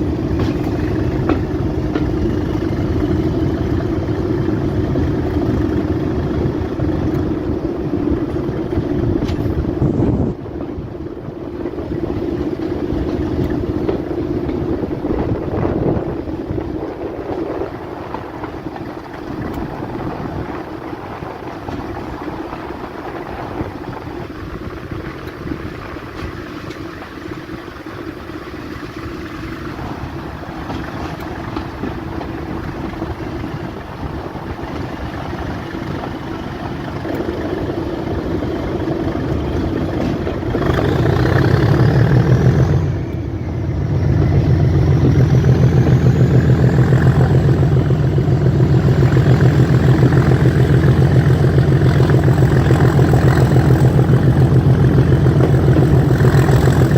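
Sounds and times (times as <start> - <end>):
diesel train engine: 0.0 - 56.9
high whine: 32.6 - 56.9.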